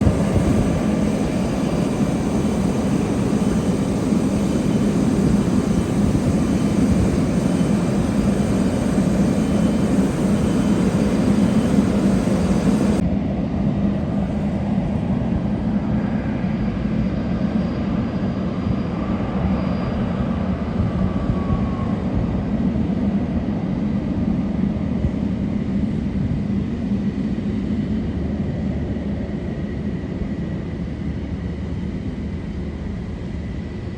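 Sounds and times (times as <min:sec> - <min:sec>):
jet engines rumbling: 0:00.0 - 0:33.9.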